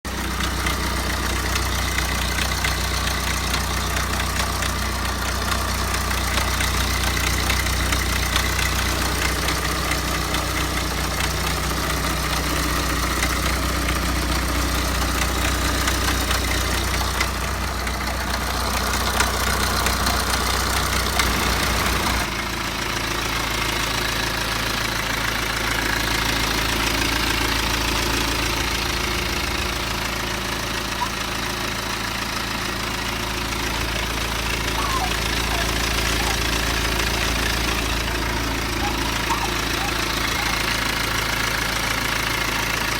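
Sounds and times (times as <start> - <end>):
diesel engine idling: 0.0 - 42.9
fast timing chain rattle: 33.7 - 42.8.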